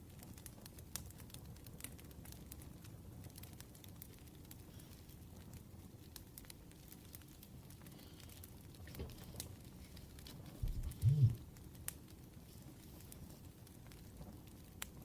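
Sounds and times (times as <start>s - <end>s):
wood fire crackling and popping: 0.0s - 15.0s
low rumble: 10.6s - 11.4s
low thump: 10.6s - 11.4s.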